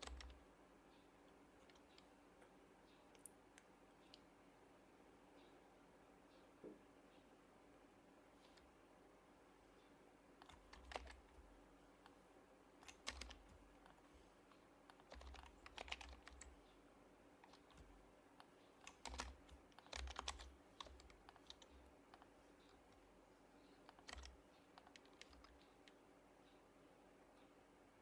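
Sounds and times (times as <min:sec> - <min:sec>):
faint keyboard typing: 0:00.0 - 0:04.4, 0:08.3 - 0:08.8, 0:09.7 - 0:26.7.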